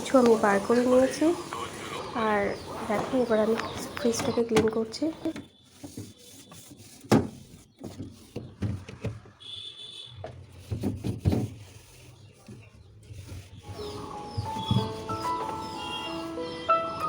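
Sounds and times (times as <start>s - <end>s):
knocks and clatters in refrigerator: 2.8s - 9.6s, 10.2s - 11.8s.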